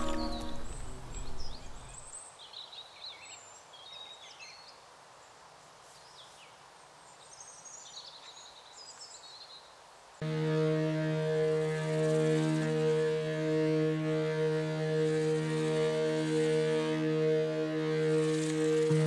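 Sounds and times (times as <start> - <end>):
music track: 0.0 - 1.4, 10.2 - 19.0
faint birdsong: 0.0 - 4.8
quiet outdoor ambience: 0.0 - 19.0.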